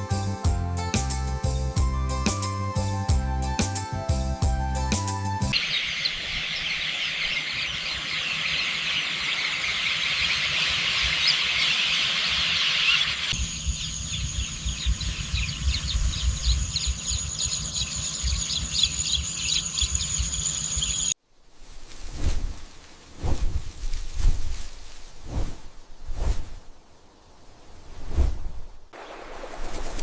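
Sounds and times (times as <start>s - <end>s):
bird chirps: 5.5s - 21.2s
insects buzzing and trilling: 5.5s - 21.2s.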